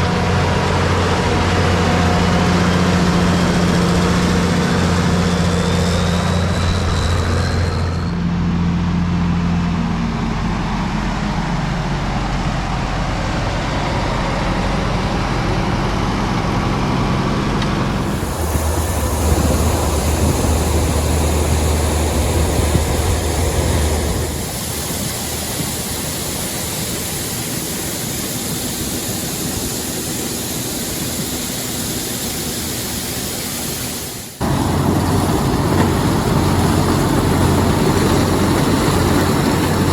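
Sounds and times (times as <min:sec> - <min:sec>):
farm machinery engine hum: 0:00.0 - 0:39.9.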